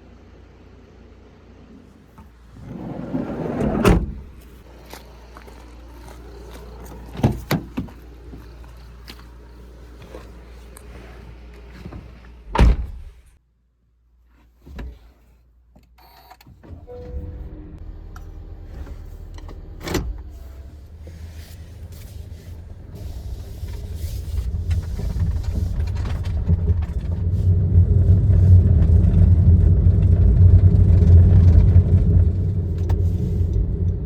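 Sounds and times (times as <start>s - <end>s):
sliding van door: 2.2s - 4.7s, 19.8s - 29.3s
van door slamming: 3.6s - 4.6s, 12.5s - 13.2s.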